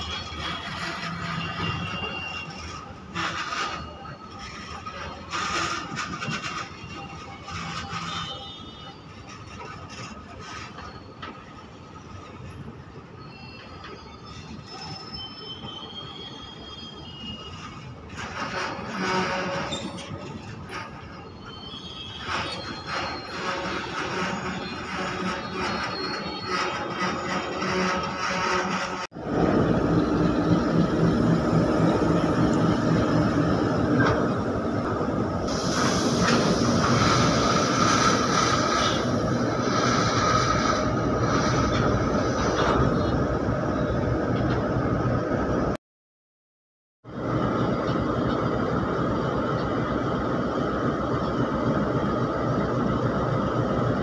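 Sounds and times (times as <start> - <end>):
freight train wheel rumble: 0.0 - 13.2, 16.2 - 45.8, 47.1 - 54.0
metallic wheel squeals: 0.0 - 43.2.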